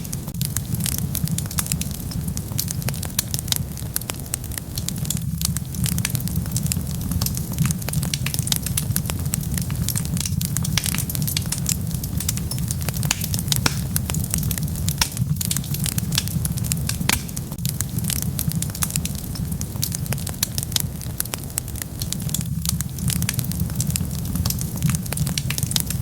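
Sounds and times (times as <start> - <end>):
crackles and pops of burning wood: 0.0 - 26.0
wood fire burning: 0.0 - 26.0.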